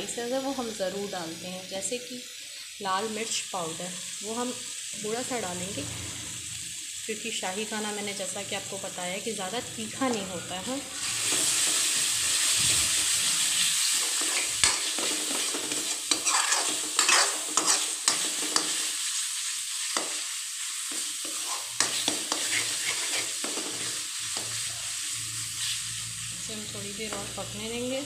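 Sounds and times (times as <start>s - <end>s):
paste sizzling in oil: 0.0s - 28.0s
spoon scraping metal pan: 13.8s - 18.8s, 20.9s - 24.6s.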